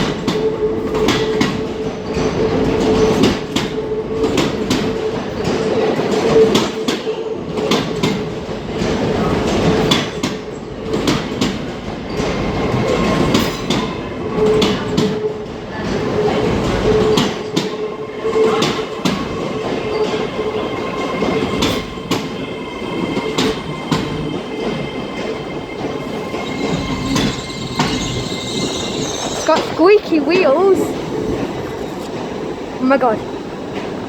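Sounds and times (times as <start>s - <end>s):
train wheels clacking over rail joints: 0.0s - 22.4s.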